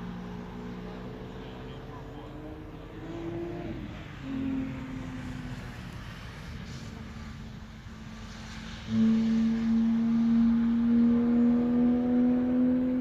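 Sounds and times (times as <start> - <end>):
racing car engine droning: 0.0 - 13.0.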